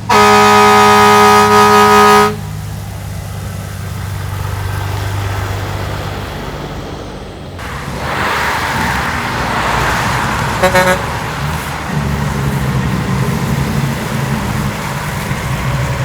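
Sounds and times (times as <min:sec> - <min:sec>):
horn toot: 0:00.0 - 0:02.5, 0:09.8 - 0:13.4
truck engines droning: 0:00.0 - 0:16.0
rushing noise: 0:02.3 - 0:16.0.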